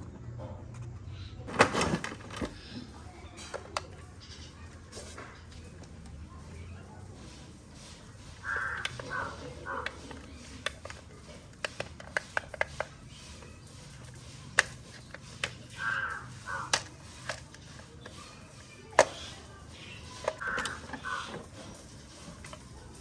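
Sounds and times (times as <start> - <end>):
sharp clicks and taps: 8.0 - 23.0
crows cawing: 8.1 - 10.9, 15.6 - 22.6.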